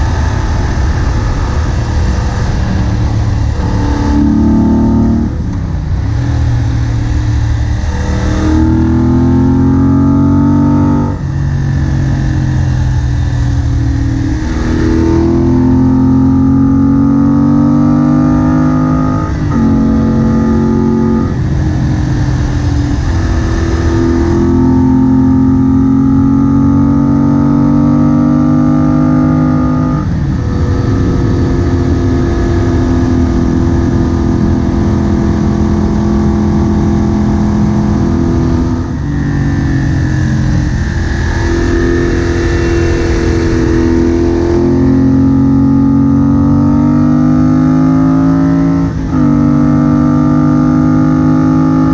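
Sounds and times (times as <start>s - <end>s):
wind rushing over microphone: 0.0s - 16.5s, 29.6s - 46.8s
motorcycle engine running: 0.0s - 51.9s.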